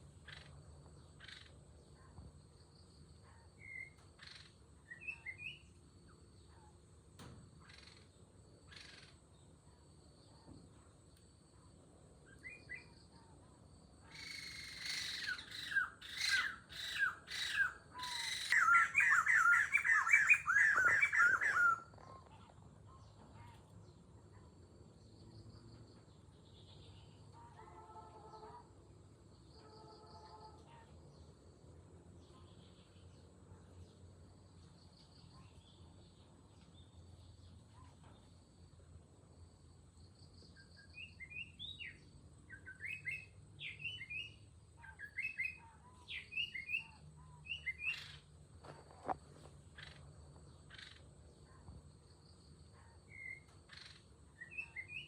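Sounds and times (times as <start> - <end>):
birds chirping: 14.2 - 23.6
birds squawking: 14.3 - 21.9.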